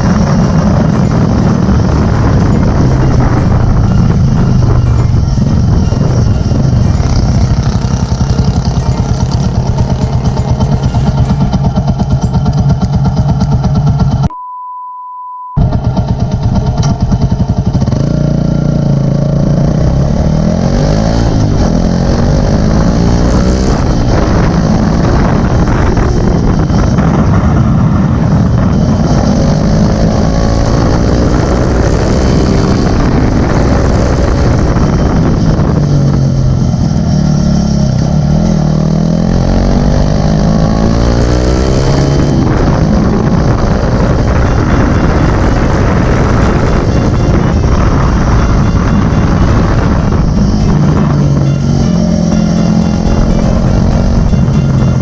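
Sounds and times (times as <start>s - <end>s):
motorcycle engine revving: 0.0s - 14.3s, 15.6s - 55.0s
steady high beep tone: 0.0s - 15.9s, 28.6s - 55.0s.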